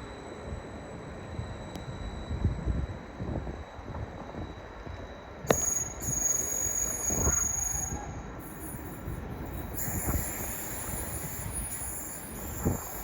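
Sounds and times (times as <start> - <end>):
train rumble: 0.0 - 13.0
wheel squeal on rail: 3.6 - 13.0.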